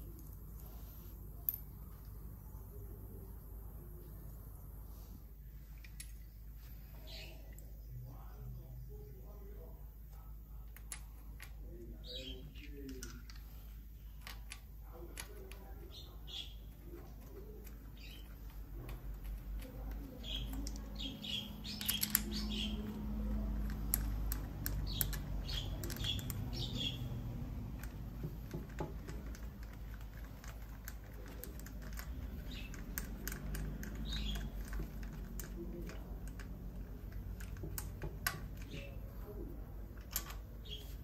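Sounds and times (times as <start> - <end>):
low steady hum: 0.0 - 41.0
small birds chirping: 0.0 - 41.0
light clicks and taps: 12.6 - 16.0, 16.7 - 41.0.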